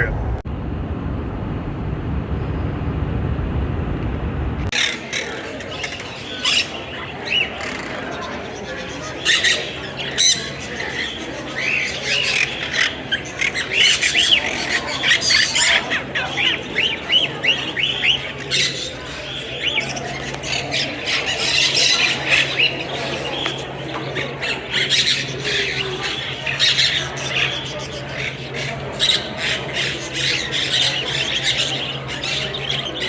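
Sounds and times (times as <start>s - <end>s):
low hum: 0.0s - 4.7s
birds squawking and chirping: 4.7s - 33.0s.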